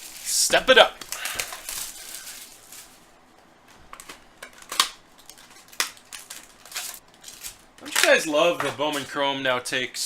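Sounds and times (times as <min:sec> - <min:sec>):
wrappers rustling: 0:00.0 - 0:03.2, 0:04.6 - 0:08.2.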